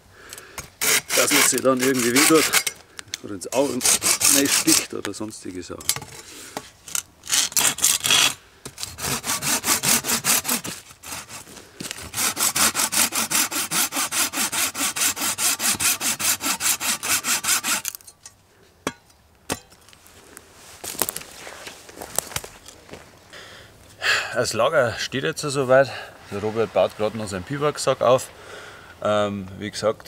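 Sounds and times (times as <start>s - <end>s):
hand saw cutting wood: 0.6s - 2.8s, 3.4s - 5.0s, 6.9s - 18.0s.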